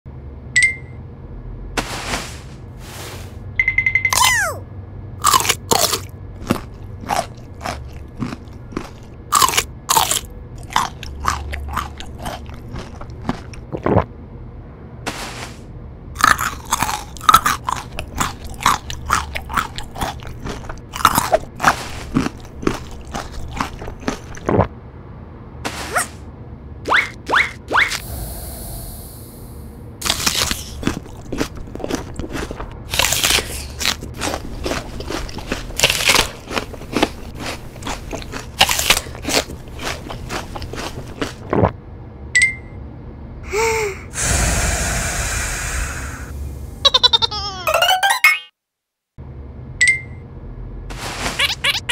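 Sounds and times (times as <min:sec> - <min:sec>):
crunching raw vegetables: 0:05.2 - 0:14.1, 0:16.2 - 0:24.7, 0:30.0 - 0:41.7.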